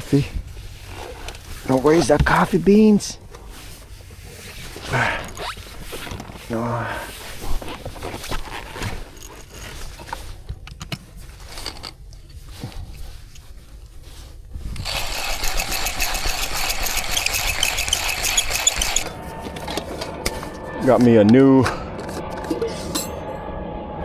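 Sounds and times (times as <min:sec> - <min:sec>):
coffee gear clicks and rustles: 0:14.7 - 0:19.1
coffee beans crunching rattle: 0:14.8 - 0:19.1.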